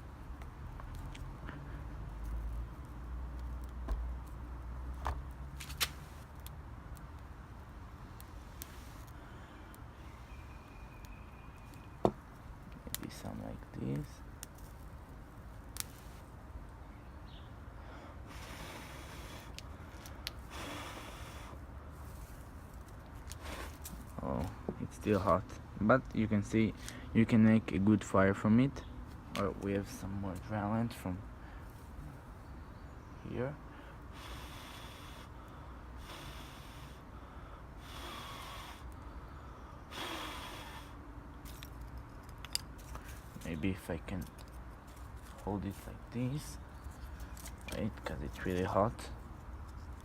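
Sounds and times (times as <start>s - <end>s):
dry grass fire crackling: 0.0s - 16.7s, 18.3s - 24.4s
person blowing on embers: 8.2s - 10.4s, 17.8s - 24.1s, 33.8s - 39.1s, 39.7s - 41.1s.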